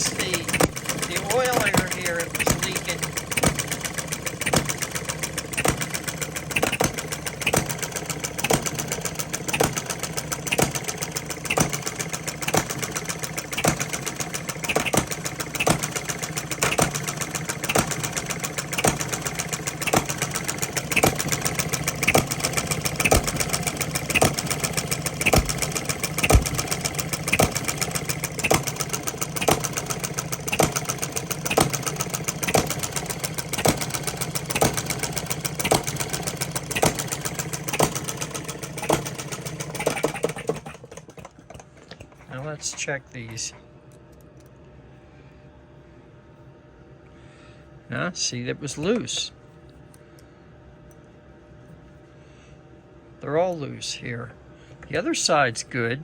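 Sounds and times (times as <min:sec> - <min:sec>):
stationary engine running: 0:00.0 - 0:43.6.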